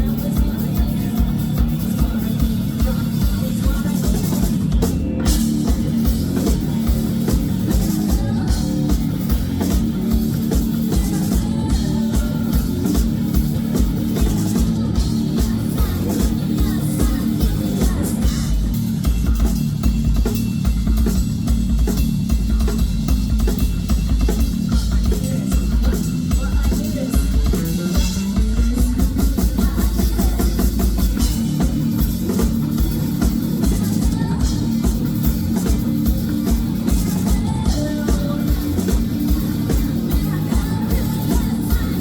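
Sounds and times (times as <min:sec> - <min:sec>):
drum kit and bass beat: 0:00.0 - 0:42.0
rock band playing: 0:00.0 - 0:42.0.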